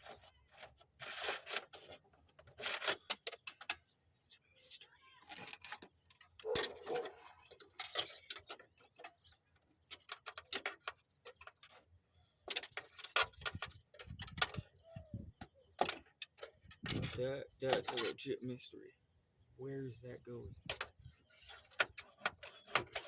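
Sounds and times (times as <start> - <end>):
hands handling wiring and parts: 0.0 - 18.4, 20.4 - 23.0.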